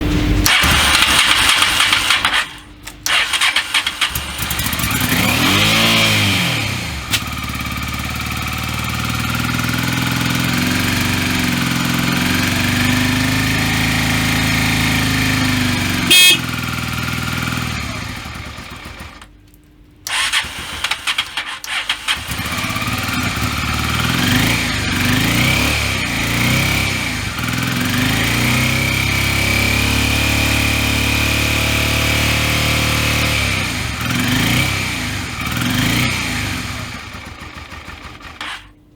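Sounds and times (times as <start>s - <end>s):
motorcycle engine idling and revving: 0.0s - 19.3s, 20.1s - 38.8s
short horn beep: 16.0s - 16.7s.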